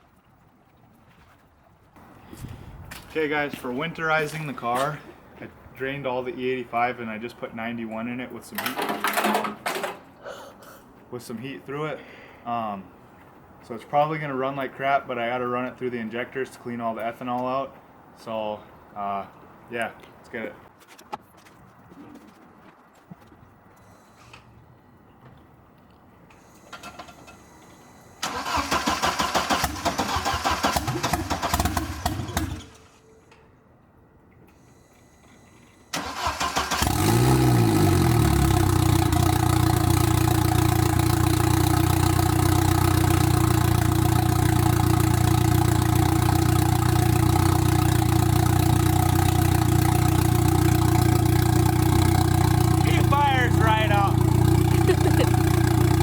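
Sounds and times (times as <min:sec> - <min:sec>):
car engine cranking and idling: 0:28.2 - 0:33.0, 0:35.9 - 0:56.0.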